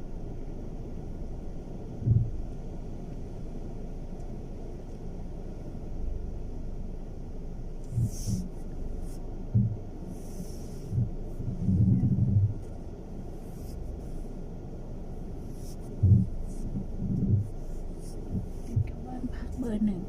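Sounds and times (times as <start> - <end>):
car rumble from inside cabin: 0.0 - 20.0
short low thumps: 2.0 - 2.6, 9.4 - 10.0, 10.9 - 12.7, 16.0 - 19.7.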